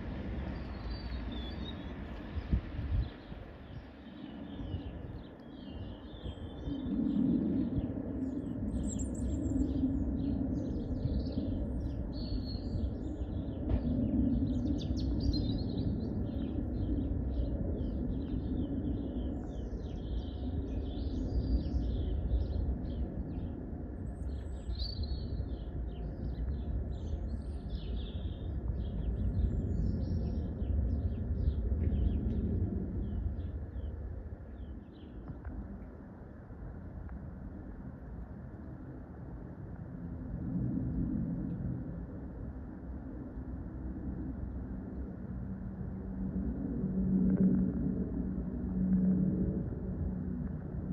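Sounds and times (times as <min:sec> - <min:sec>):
low background rumble: 0:00.0 - 0:50.9
small birds chirping: 0:07.8 - 0:32.4.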